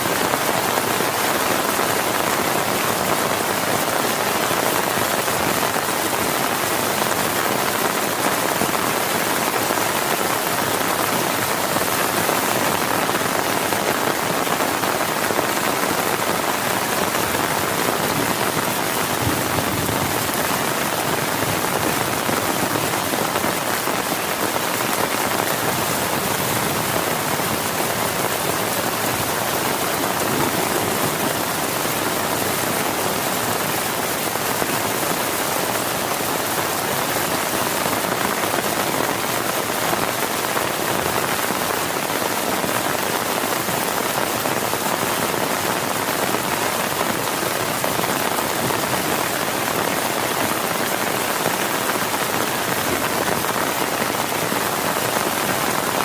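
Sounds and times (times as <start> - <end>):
heavy rain on a tent: 0.0 - 56.0.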